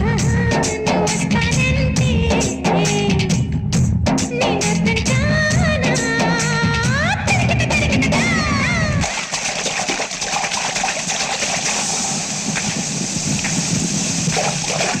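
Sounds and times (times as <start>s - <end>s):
song music: 0.0s - 9.0s
steady rain falling: 11.7s - 15.0s.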